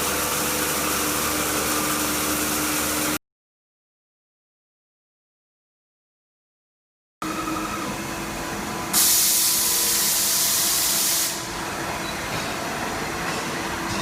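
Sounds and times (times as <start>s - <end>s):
cnc router whine: 7.2s - 10.0s
loud hiss: 8.9s - 11.7s.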